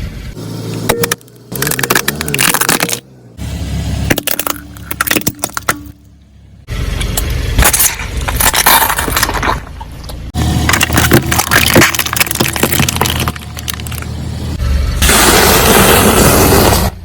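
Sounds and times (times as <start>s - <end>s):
car rumble: 0.0s - 17.0s
tyres crushing crunchy objects: 0.8s - 3.2s, 4.1s - 6.0s, 7.6s - 14.2s.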